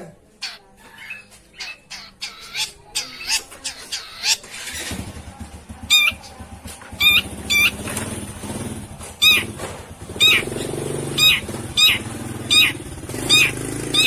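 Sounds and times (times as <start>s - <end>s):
bird giving short harsh calls: 9.2s - 9.6s, 10.2s - 14.0s.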